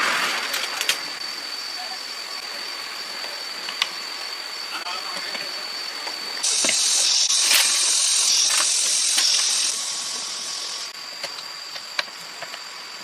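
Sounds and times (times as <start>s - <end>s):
loud high hiss: 5.8s - 11.1s
steady high whine: 6.4s - 11.0s
sharp clicks: 6.5s - 10.2s.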